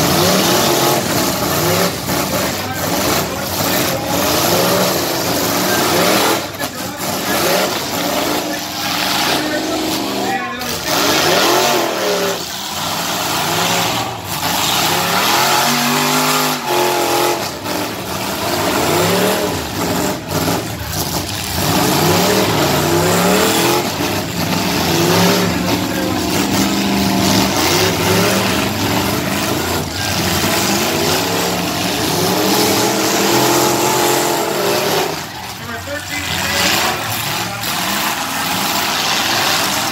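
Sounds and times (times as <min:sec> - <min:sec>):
engines revving hard: 0:00.0 - 0:39.9.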